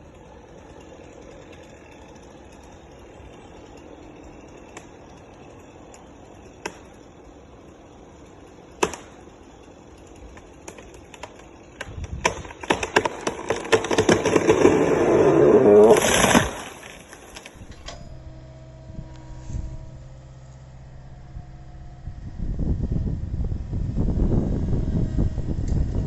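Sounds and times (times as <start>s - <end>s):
truck engine idling: 17.2s - 26.0s.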